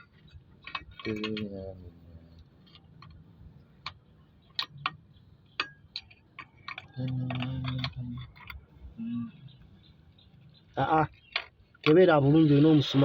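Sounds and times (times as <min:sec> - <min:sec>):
metal hand tools clinking: 0:00.0 - 0:01.6, 0:05.6 - 0:08.6.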